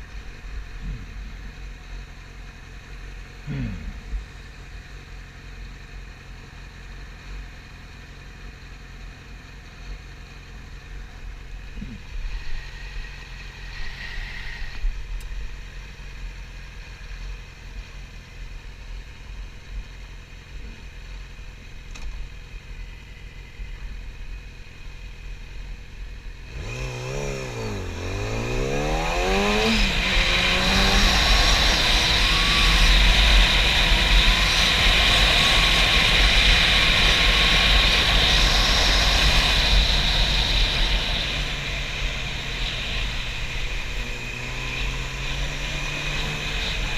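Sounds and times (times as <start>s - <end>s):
motorcycle engine idling: 0.0s - 13.8s, 14.8s - 26.5s.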